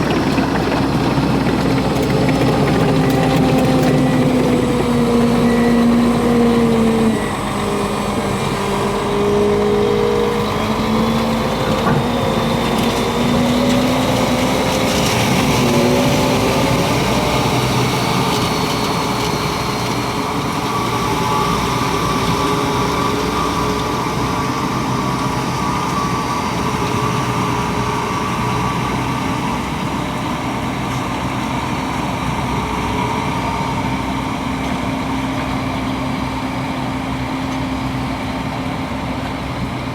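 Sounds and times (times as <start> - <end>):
hydraulic pumps whine: 0.0 - 39.9
snowcat diesel engine under load: 0.0 - 39.9.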